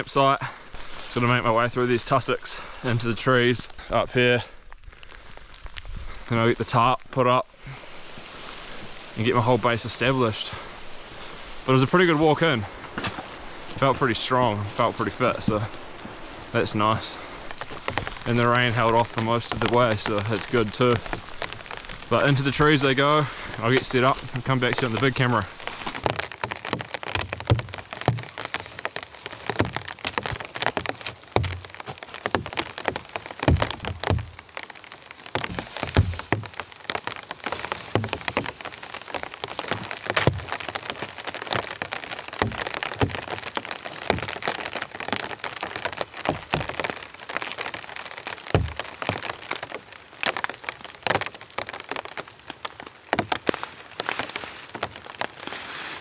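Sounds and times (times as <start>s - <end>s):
rain drops falling: 0.0s - 56.0s
low thumps: 29.4s - 34.4s, 48.5s - 49.3s.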